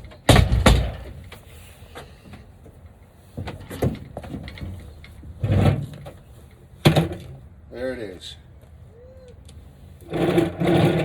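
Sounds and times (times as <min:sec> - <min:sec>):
knocks and thuds: 0:00.3 - 0:01.2.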